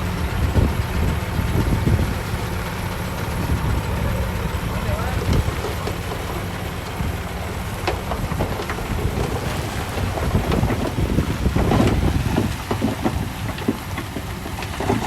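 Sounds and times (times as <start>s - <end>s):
heavy machinery diesel rumble: 0.0s - 15.0s
wind on microphone: 0.4s - 2.4s, 8.9s - 13.4s
metal clanks and knocks: 7.8s - 15.0s.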